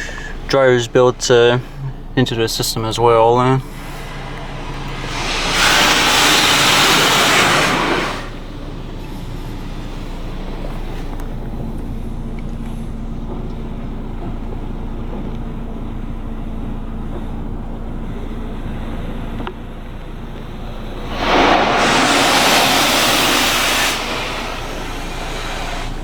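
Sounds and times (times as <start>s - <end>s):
car wash machinery hum: 0.0s - 26.0s
loud rushing hiss: 2.1s - 10.9s, 20.6s - 26.0s.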